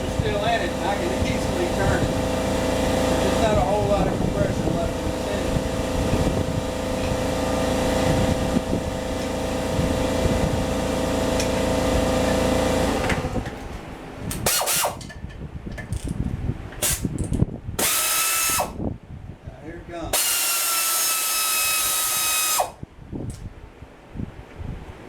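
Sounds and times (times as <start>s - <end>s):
motor drone with held tones: 0.0s - 13.6s, 17.8s - 18.8s, 20.1s - 22.8s.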